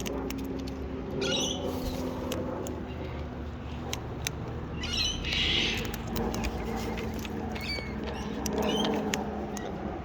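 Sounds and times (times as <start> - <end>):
parrots squawking: 1.2 - 1.7, 4.7 - 6.0.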